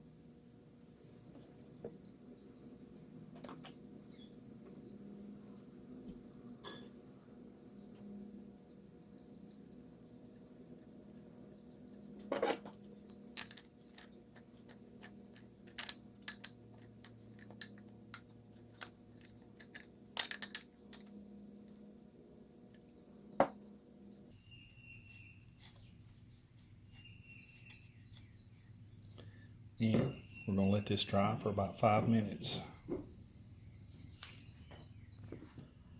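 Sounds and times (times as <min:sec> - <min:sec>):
small objects clicking and knocking: 0:12.2 - 0:21.2.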